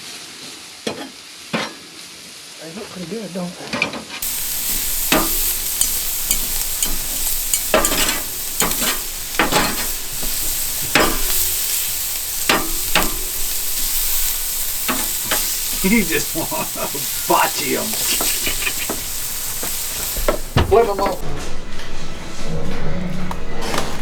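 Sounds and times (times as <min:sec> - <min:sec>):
meat sizzling on a grill: 0:00.0 - 0:03.5, 0:04.2 - 0:21.2
sharp clicks on a grill grate: 0:04.2 - 0:15.9.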